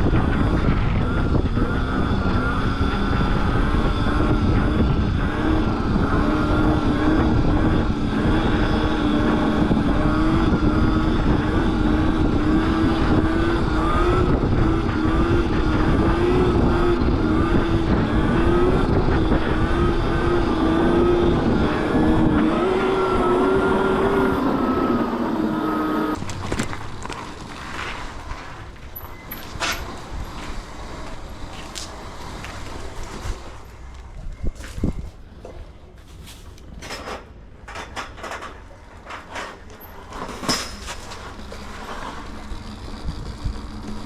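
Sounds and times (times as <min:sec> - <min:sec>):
mini bike motor revving: 0:00.0 - 0:33.7, 0:39.4 - 0:44.0
heavy low rumble: 0:00.0 - 0:36.0.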